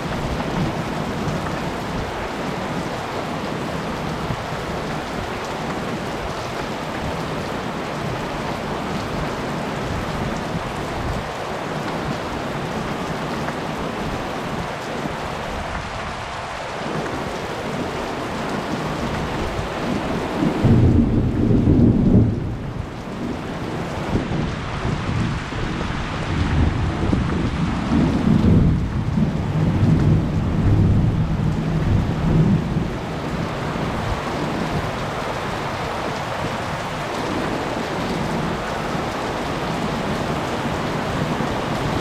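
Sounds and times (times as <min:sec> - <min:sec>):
heavy rain falling: 0:00.0 - 0:42.0
thunder rumbling: 0:16.9 - 0:42.0.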